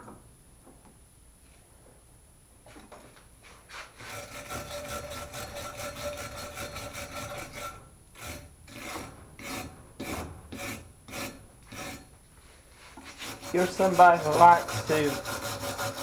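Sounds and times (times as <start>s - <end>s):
wire brush scraping metal: 3.5s - 16.0s.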